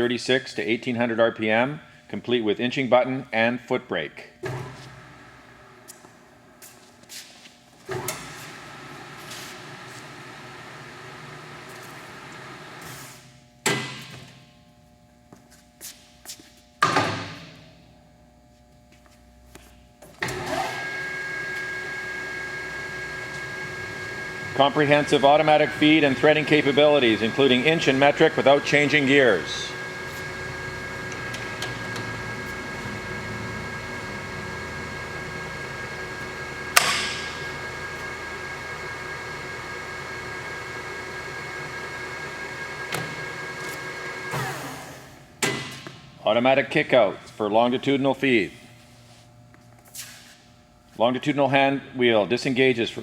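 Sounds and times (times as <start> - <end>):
lathe humming with whining tones: 7.9 - 12.9, 20.2 - 45.4.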